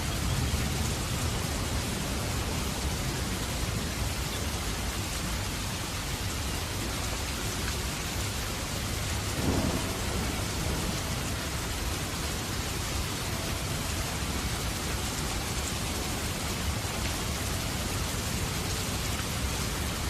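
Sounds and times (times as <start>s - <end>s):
steady rain: 0.0s - 20.0s
low rumble of thunder: 8.1s - 20.0s.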